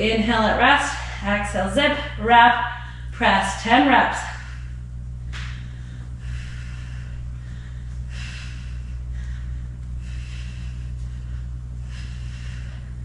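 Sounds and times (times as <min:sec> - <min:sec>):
steady low hum: 0:00.0 - 0:13.0
person breathing heavily: 0:02.7 - 0:03.2, 0:04.2 - 0:13.0.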